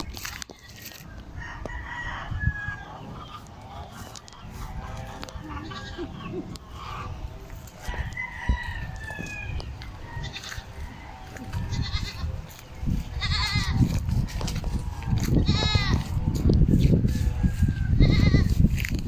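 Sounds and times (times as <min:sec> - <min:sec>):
farm animal bleating: 0:00.5 - 0:01.1, 0:04.0 - 0:07.2, 0:09.2 - 0:16.4, 0:17.3 - 0:18.8.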